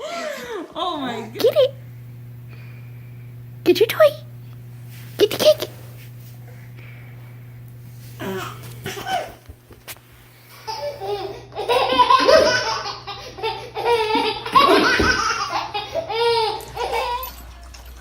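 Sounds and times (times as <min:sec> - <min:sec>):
baby laughing: 0:08.2 - 0:09.4, 0:10.6 - 0:17.4.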